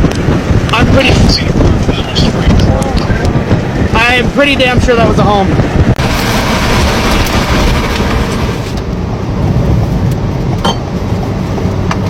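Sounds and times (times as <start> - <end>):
tornado wind rumble: 0.0 - 12.0
wind buffeting microphone: 0.0 - 12.0.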